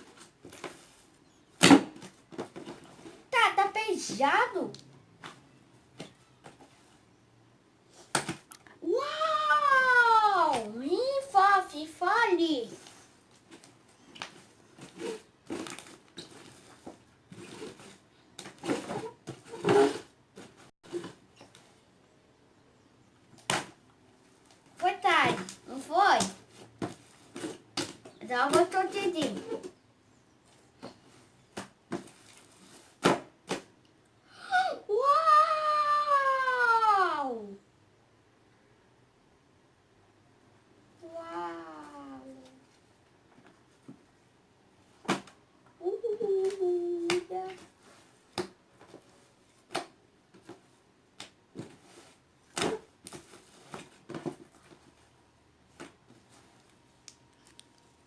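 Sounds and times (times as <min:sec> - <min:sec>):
child's drawn-out exclamation: 0:08.8 - 0:12.2, 0:34.4 - 0:37.6, 0:41.0 - 0:42.6.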